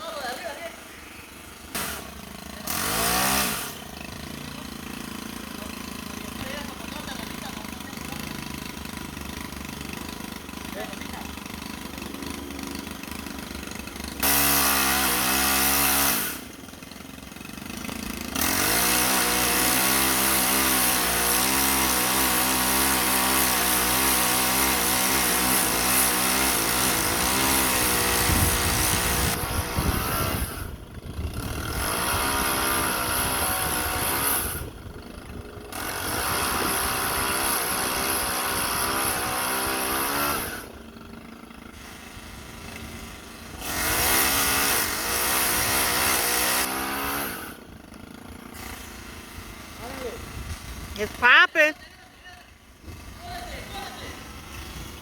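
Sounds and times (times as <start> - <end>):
chainsaw at high throttle: 0.0 - 55.0.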